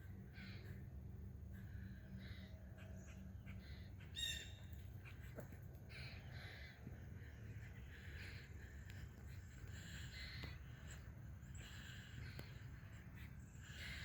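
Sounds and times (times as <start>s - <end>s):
faint scattered animal calls: 0.0s - 14.0s.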